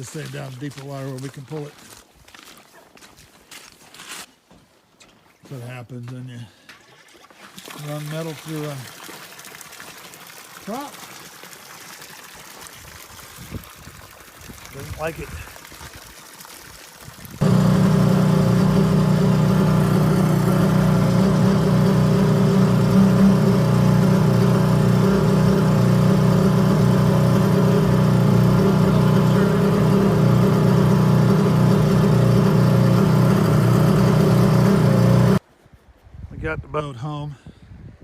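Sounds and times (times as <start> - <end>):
airboat engine and propeller drone: 17.4 - 35.4.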